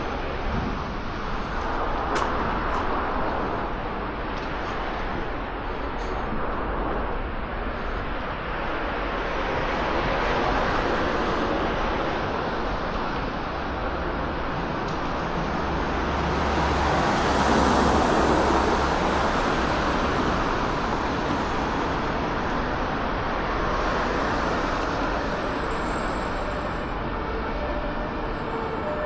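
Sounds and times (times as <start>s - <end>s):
motor vehicles passing: 15.0s - 22.7s.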